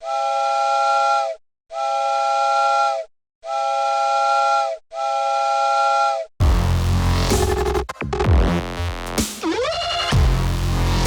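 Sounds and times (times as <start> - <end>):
steam train whistle blasts: 0.0 - 6.3.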